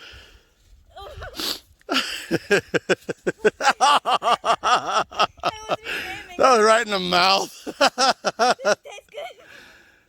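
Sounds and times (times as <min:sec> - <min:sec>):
person laughing hard: 0:01.0 - 0:05.9, 0:07.6 - 0:08.9.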